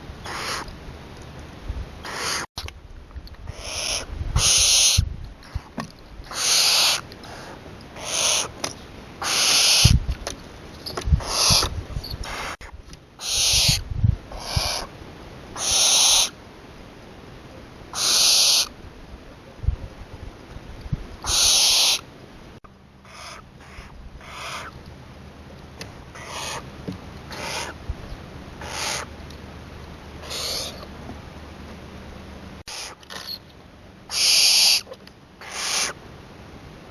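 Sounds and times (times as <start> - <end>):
owl hissing screeches: 0.2 - 0.7, 2.0 - 2.5, 3.5 - 5.0, 6.3 - 8.5, 9.2 - 10.0, 11.2 - 14.9, 15.6 - 16.4, 17.9 - 18.7, 21.2 - 22.0, 23.0 - 24.7, 26.1 - 26.6, 27.3 - 27.8, 28.6 - 29.1, 30.2 - 30.9, 32.7 - 33.4, 34.1 - 36.0.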